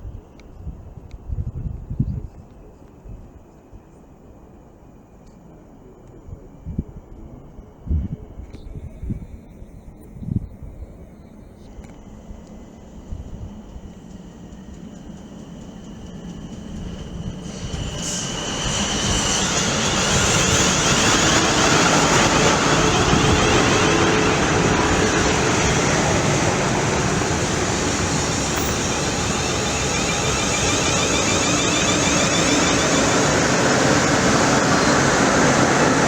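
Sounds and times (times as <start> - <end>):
train passing: 10.6 - 36.0
wheels rushing on rail: 10.6 - 36.0.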